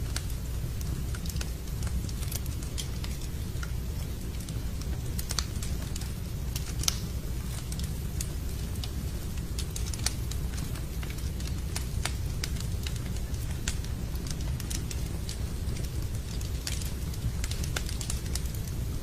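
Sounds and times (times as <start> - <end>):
steady low rumble: 0.0 - 19.0
wood fire crackling and popping: 0.0 - 19.0.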